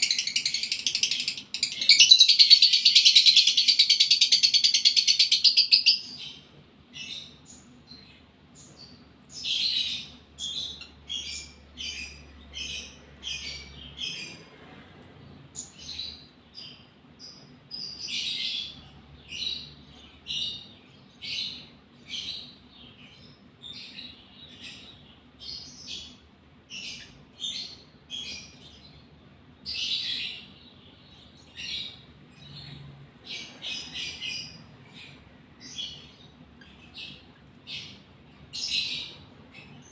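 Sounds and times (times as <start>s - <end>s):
lovebird chirping: 0.0s - 14.4s.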